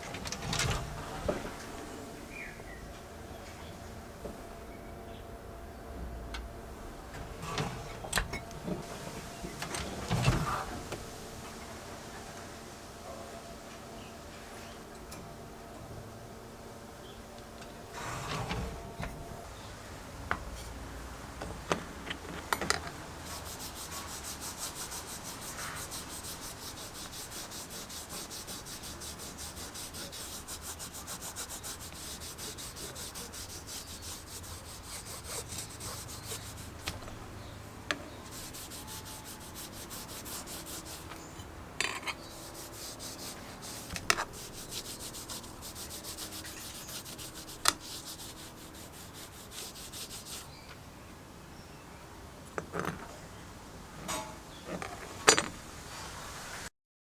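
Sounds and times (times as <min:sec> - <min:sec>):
sandpaper rubbing strokes: 0:23.1 - 0:37.1, 0:38.2 - 0:41.3, 0:42.1 - 0:50.6.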